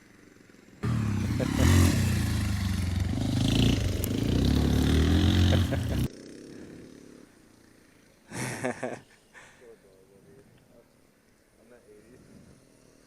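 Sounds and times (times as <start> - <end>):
motorcycle engine revving: 0.8 - 6.1.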